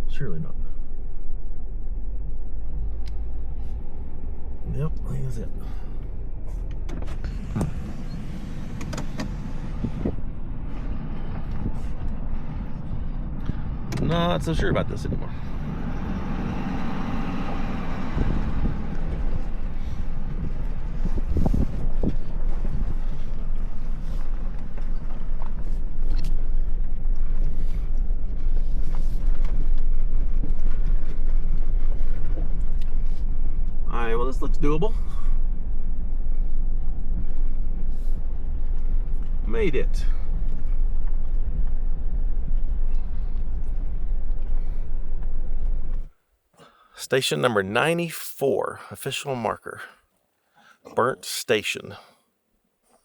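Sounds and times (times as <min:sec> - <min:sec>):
truck rumbling on dirt track: 0:01.0 - 0:46.1
camper body creaking and rattling: 0:05.9 - 0:14.4.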